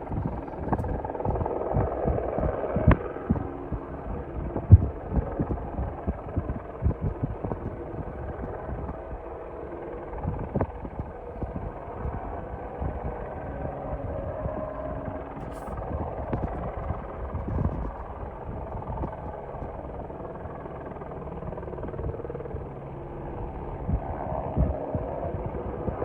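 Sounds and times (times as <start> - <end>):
low thumps: 0.0 - 9.0
helicopter engine and rotor drone: 0.0 - 26.0.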